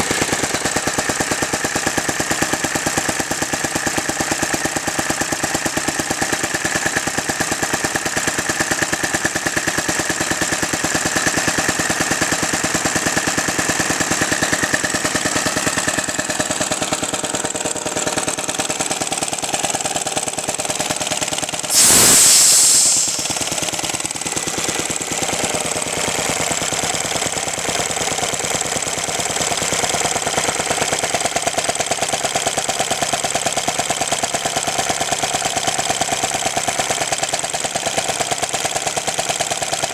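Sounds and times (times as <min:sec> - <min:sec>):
air hissing out: 0:21.7 - 0:24.0
engine running with even beat: 0:21.7 - 0:24.2.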